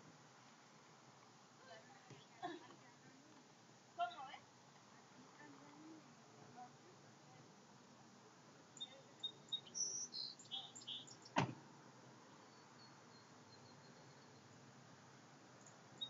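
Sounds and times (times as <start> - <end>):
faint outdoor background noise: 0.0 - 16.0
small birds chirping: 8.7 - 11.5, 12.2 - 14.8, 15.5 - 16.0.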